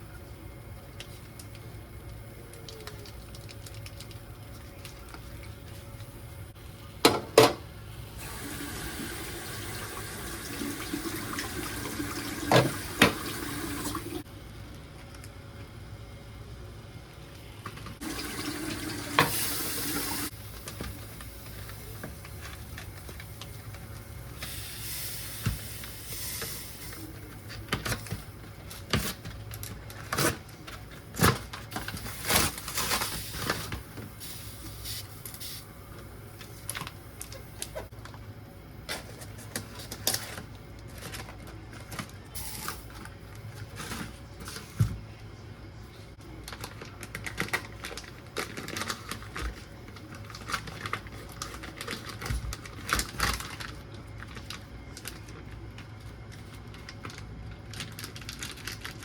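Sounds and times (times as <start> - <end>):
water running from a tap: 8.2 - 14.2, 18.0 - 20.3.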